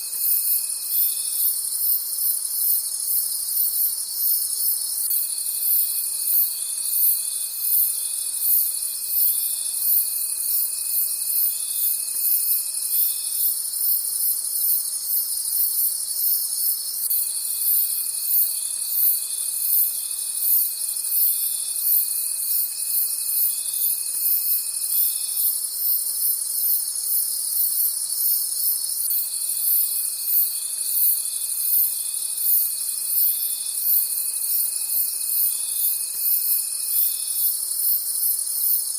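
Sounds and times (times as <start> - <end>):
crickets chirping: 0.0 - 38.9
low steady insect trill: 0.0 - 38.9.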